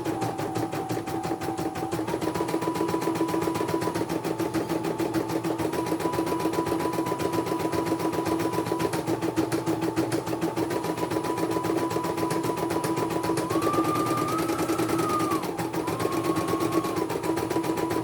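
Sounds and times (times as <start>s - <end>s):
machine motor hum and whine: 0.0s - 18.0s.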